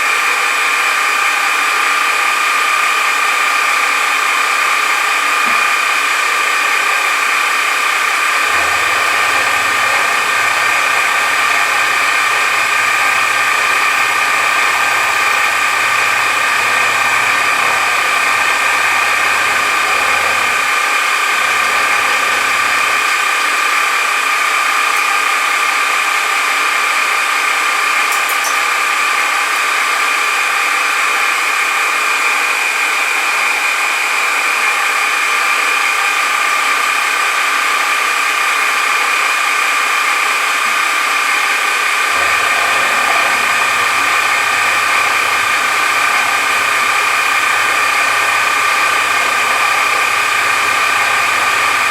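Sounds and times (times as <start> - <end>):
machine tool cutting metal whine: 0.0 - 51.9.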